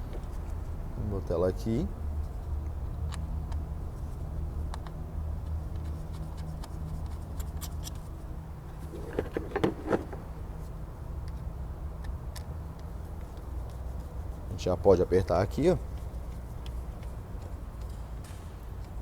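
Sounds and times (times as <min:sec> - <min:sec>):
light clicks of parts handled: 0:11.2 - 0:14.5, 0:15.4 - 0:19.0.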